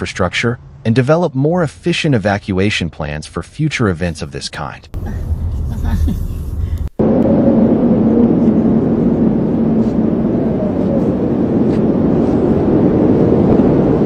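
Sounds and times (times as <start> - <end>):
roar of storm wind: 5.0 - 14.0.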